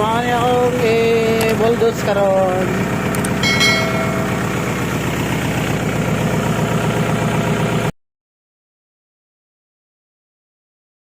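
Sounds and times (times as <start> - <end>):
tractor diesel engine chugging: 0.0 - 7.9.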